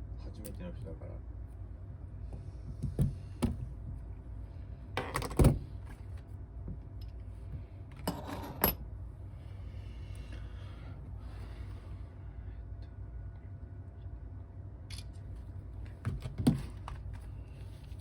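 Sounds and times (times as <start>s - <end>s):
metal tools clattering on surface: 8.0s - 8.8s.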